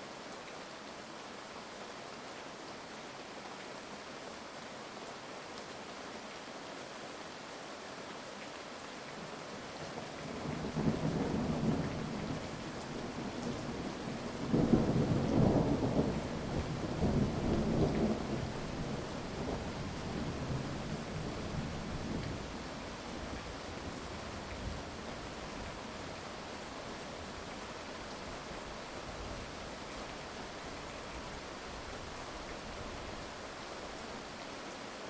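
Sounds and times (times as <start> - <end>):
heavy rain hiss: 10.1 - 35.0.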